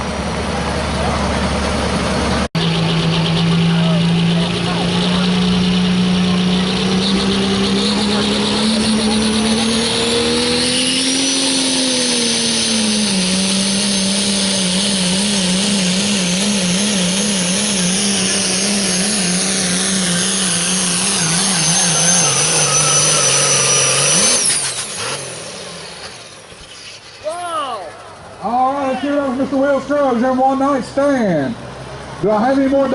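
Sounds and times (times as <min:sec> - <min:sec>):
diesel truck engine drone: 0:00.0 - 0:32.9
high turbo whistle: 0:16.1 - 0:27.9.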